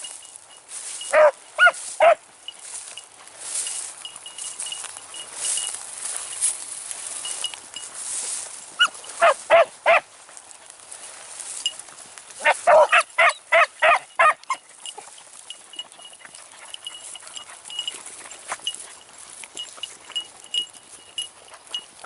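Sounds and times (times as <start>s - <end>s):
hounds baying: 0.9s - 2.9s, 8.7s - 10.1s, 12.3s - 22.0s.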